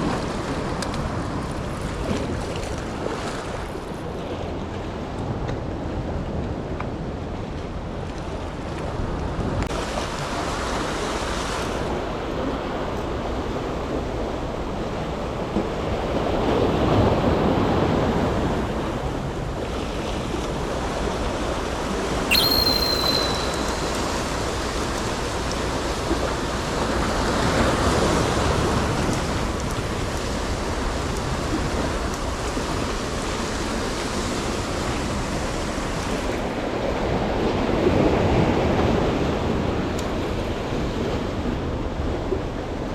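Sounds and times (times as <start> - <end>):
wind: 0.0 - 42.9
high chirp: 22.3 - 25.0.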